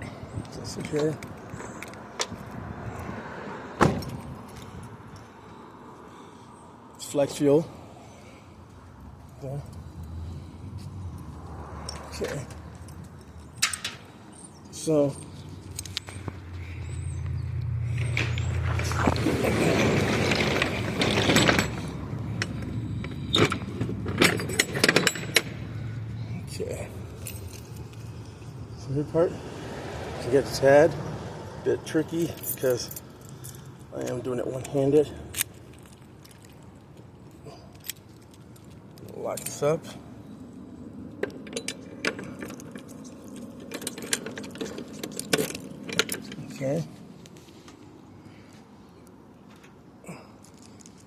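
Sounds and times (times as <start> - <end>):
sharp metallic clicks and clanks: 11.8 - 14.1, 17.9 - 25.7, 41.2 - 46.7.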